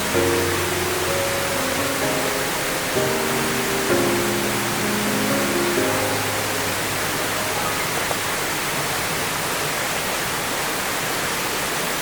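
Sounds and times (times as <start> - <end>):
held music notes: 0.0 - 8.9
mountain stream rushing: 0.0 - 12.0.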